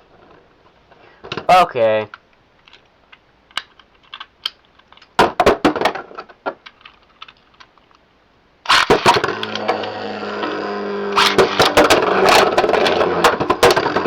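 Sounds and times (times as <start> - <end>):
spinning tops launched clacking: 8.7 - 9.7
plastic spinning tops clicking: 8.7 - 10.0, 11.2 - 14.0
spinning tops whirring: 8.7 - 14.0.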